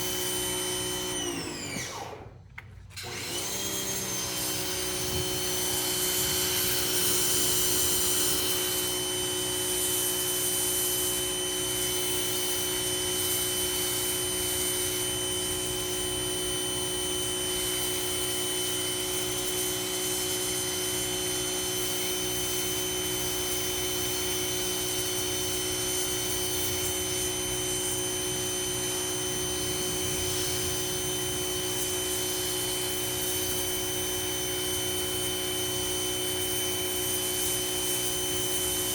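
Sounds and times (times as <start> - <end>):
pressure washer motor whine: 0.0 - 38.9.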